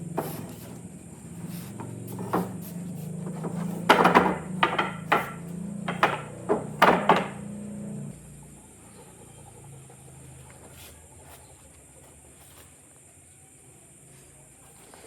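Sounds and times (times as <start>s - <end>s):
steady low hum: 0.0s - 15.0s
hammer knocking on wood: 1.4s - 7.5s.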